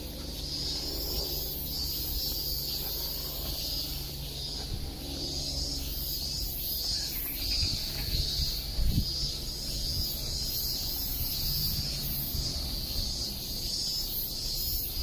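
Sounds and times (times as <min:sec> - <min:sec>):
insects singing in chorus: 0:00.0 - 0:15.0
steady low hum: 0:00.0 - 0:15.0.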